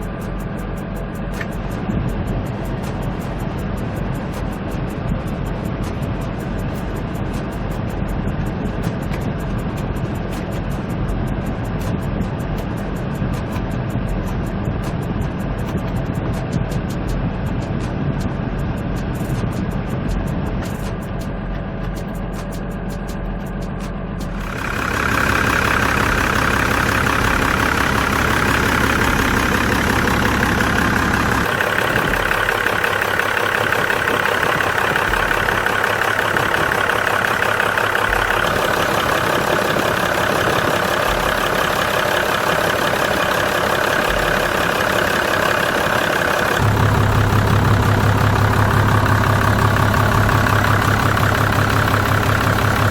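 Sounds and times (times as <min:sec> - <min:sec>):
truck diesel engine idling: 0:24.1 - 0:52.9.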